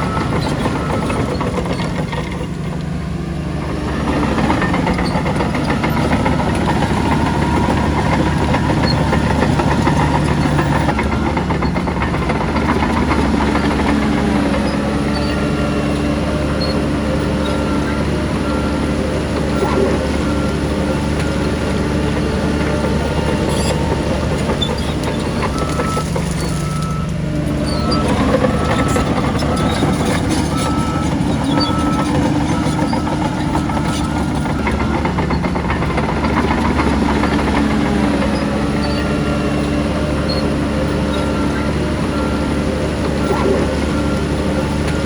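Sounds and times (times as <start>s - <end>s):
heavy diesel machinery running: 0.0s - 45.0s.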